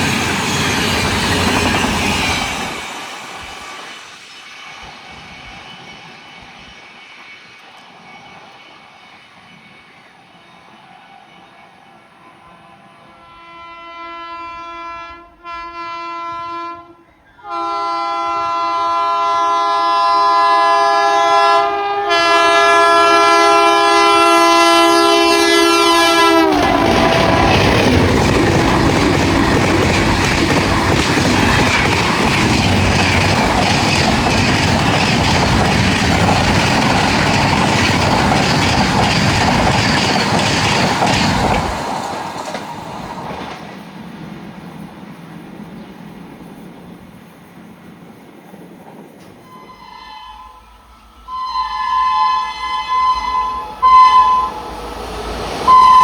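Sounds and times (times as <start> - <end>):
train rushing past: 0.0 - 56.0
train horn blasts: 13.1 - 27.8, 49.4 - 55.0, 55.7 - 56.0
wheels clattering over rail joints: 26.4 - 44.9.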